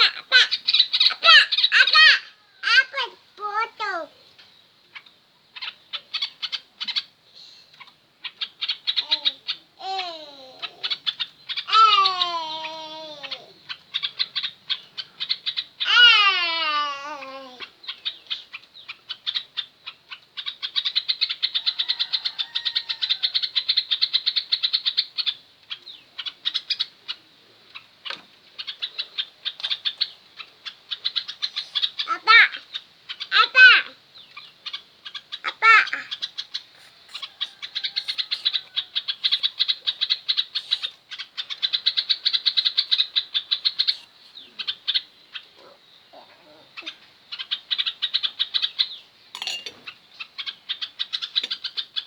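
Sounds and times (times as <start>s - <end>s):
bird chattering: 0.0s - 52.0s
bird long falling cries: 9.0s - 13.6s, 15.8s - 17.7s, 35.3s - 47.0s.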